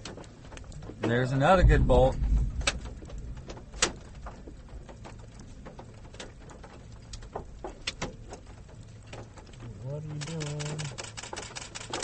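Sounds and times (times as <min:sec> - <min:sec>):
low steady hum: 0:00.0 - 0:12.0
raindrops tapping on car: 0:00.0 - 0:12.0.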